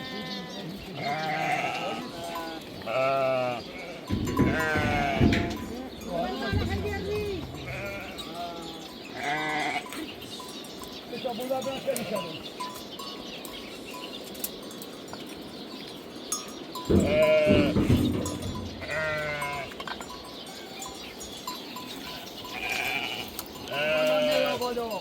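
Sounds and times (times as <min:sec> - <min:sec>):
sheep or goats bleating: 0:00.0 - 0:10.2, 0:11.7 - 0:12.4, 0:16.9 - 0:19.9, 0:22.4 - 0:25.0.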